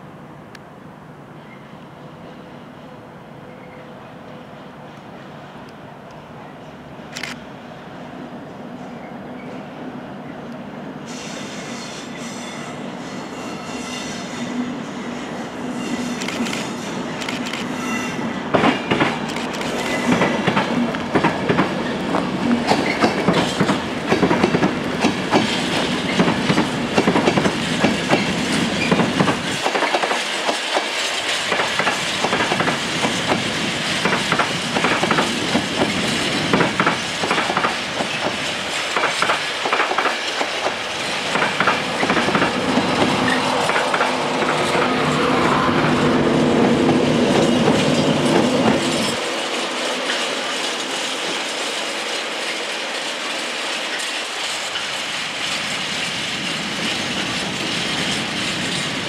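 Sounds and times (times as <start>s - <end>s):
train wheels clacking over rail joints: 18.5s - 46.0s, 46.6s - 59.0s
diesel locomotive engine drone: 30.5s - 59.0s.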